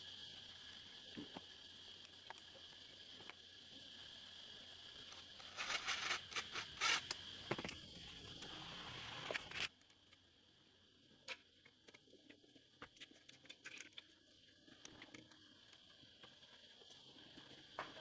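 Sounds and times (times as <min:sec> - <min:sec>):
steady high hiss: 0:00.0 - 0:11.7
handling clicks and scrapes: 0:05.1 - 0:07.8.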